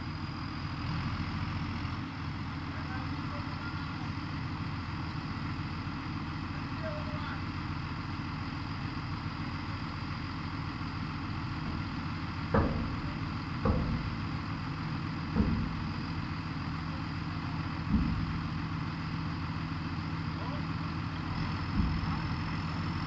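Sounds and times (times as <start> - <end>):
tractor diesel engine running: 0.0 - 23.0
loud thumps: 11.7 - 14.5, 15.2 - 16.0, 17.9 - 18.5, 21.7 - 22.3.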